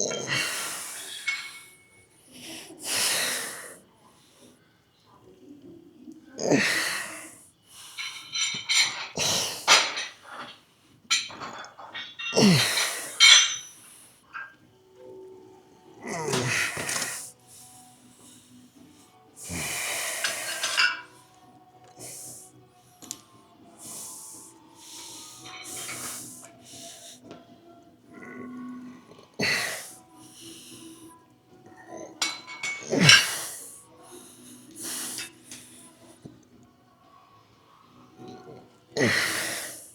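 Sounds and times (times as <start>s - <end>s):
straining grunts: 0.0s - 1.8s, 6.4s - 7.4s, 11.4s - 13.6s, 15.9s - 17.4s, 28.1s - 31.0s, 31.7s - 33.8s, 38.2s - 39.9s
light metal clinks: 1.0s - 2.0s, 11.1s - 14.6s, 32.2s - 33.1s
forceful breathing: 16.1s - 27.3s, 32.2s - 36.3s.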